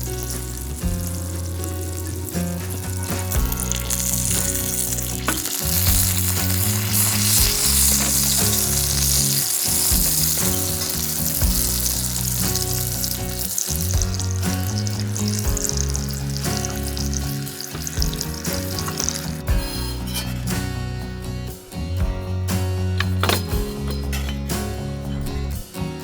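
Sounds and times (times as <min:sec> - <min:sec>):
food sizzling in a pan: 0:00.0 - 0:20.5
background music: 0:00.0 - 0:26.0.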